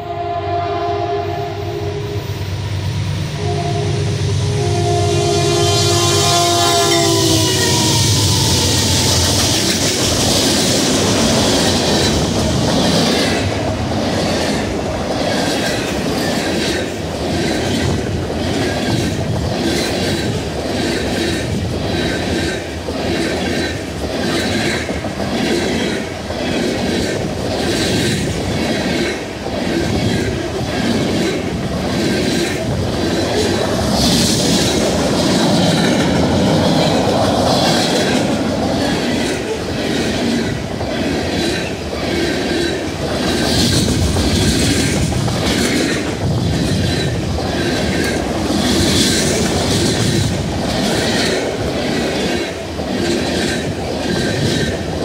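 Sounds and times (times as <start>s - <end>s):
train rumble: 0.0s - 55.0s
train wheels clacking over rail joints: 6.2s - 55.0s.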